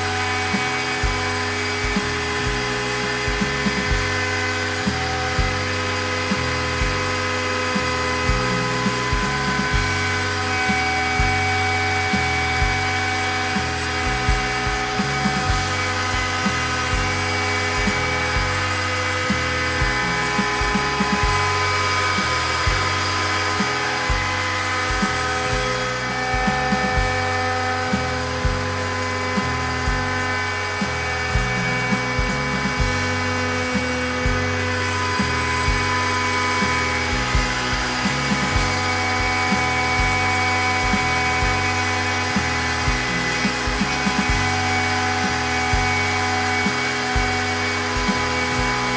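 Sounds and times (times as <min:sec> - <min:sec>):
music with bass beat: 0:00.0 - 0:48.9
router spindle whining: 0:00.0 - 0:48.9
stepper motor tones: 0:00.0 - 0:48.9.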